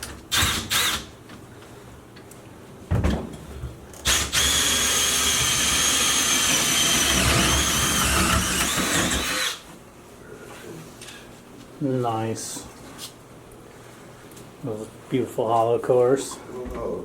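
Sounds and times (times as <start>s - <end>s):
power drill boring into metal: 0.3s - 1.1s, 4.0s - 9.6s.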